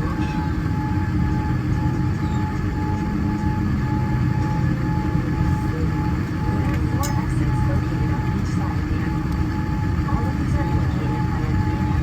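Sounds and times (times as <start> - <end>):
aircraft cabin low rumble: 0.0 - 12.0.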